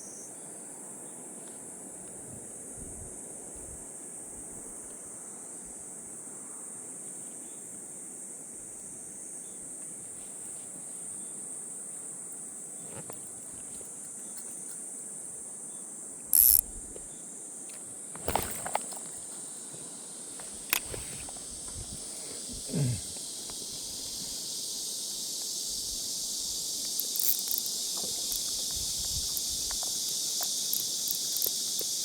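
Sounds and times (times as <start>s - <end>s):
insects shrilling: 16.3s - 16.8s, 18.0s - 32.0s.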